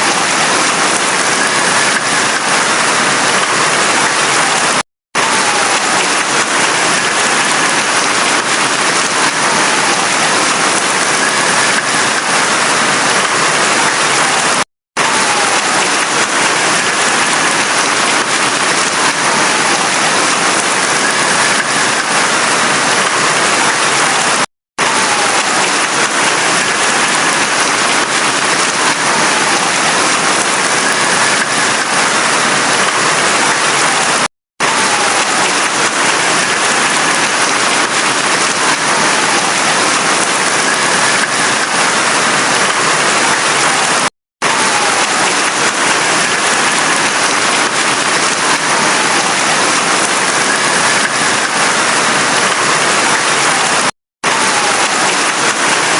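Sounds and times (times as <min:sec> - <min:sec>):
heavy rain: 0:00.0 - 0:55.9.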